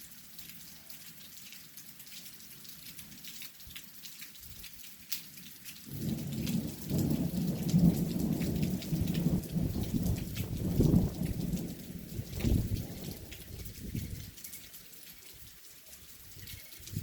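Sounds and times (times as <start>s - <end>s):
rain pattering: 0.0s - 17.0s
low rumble of thunder: 5.9s - 14.3s.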